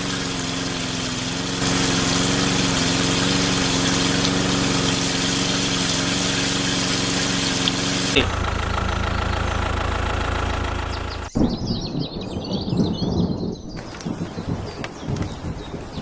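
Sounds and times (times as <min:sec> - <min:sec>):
hiss: 0:00.0 - 0:08.2
small engine running: 0:00.0 - 0:11.4.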